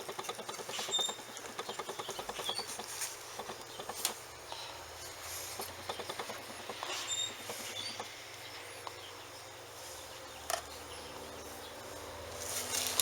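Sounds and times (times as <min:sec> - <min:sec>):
rustling handling noise: 0:00.0 - 0:04.3, 0:12.3 - 0:13.0.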